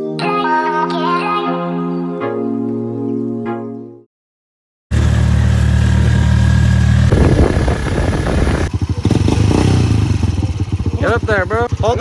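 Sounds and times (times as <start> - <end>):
small engine running: 4.9 - 12.0.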